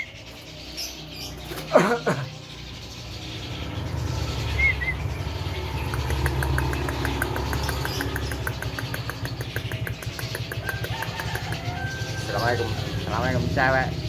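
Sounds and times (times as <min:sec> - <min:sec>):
engine idling: 0:04.4 - 0:14.0
rapid even ticking: 0:05.2 - 0:12.2.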